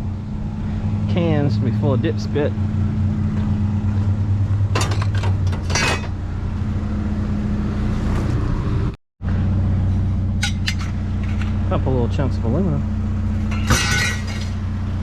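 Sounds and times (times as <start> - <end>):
vehicle engine idling: 0.0 - 8.0, 9.2 - 15.0
metal cans clinking: 13.5 - 14.6.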